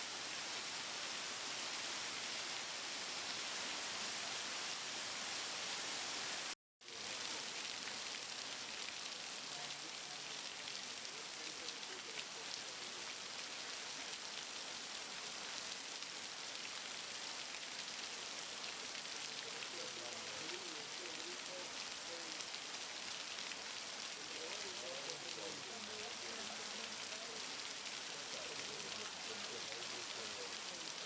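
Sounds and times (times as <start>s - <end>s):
heavy rain hissing: 0.0s - 31.0s
faint voices: 9.4s - 13.2s, 19.2s - 22.6s, 23.8s - 31.0s.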